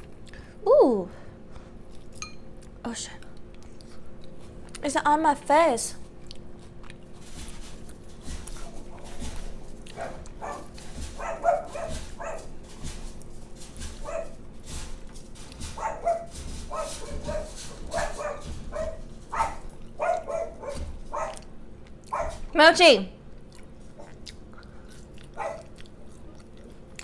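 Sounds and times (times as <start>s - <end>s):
dog barking: 7.4s - 22.6s, 25.3s - 25.8s.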